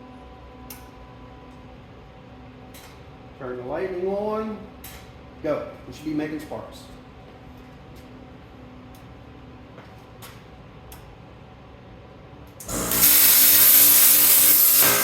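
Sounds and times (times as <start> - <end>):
plasma cutter arc hissing: 12.6 - 15.0.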